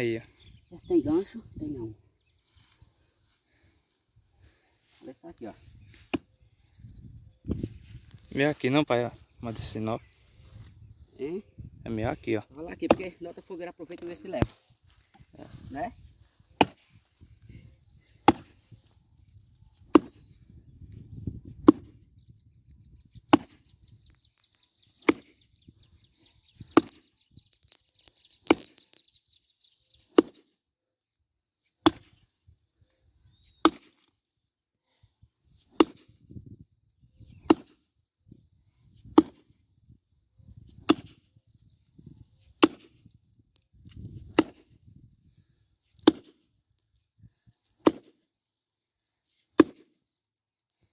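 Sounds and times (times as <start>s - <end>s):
axe chopping wood: 5.9s - 6.3s, 12.8s - 13.2s, 16.5s - 17.2s, 18.2s - 18.8s, 19.8s - 20.4s, 21.6s - 22.0s, 23.3s - 23.6s, 25.0s - 25.3s, 26.8s - 27.1s, 28.4s - 28.8s, 30.1s - 30.5s, 31.8s - 32.2s, 33.5s - 34.1s, 35.6s - 36.1s, 37.4s - 37.8s, 39.0s - 39.5s, 40.7s - 41.2s, 42.5s - 43.0s, 44.2s - 44.8s, 45.9s - 46.4s, 47.7s - 48.2s, 49.6s - 50.0s.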